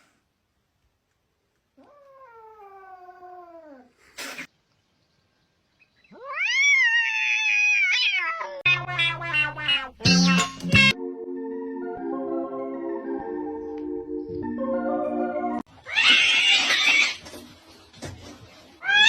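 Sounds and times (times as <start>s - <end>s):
cat meowing and yowling: 6.1s - 10.0s, 15.8s - 17.2s
music: 10.0s - 15.7s.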